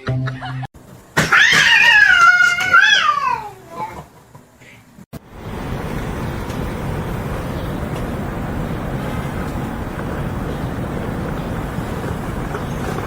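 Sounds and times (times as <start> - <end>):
low rumbling noise: 5.2 - 13.0.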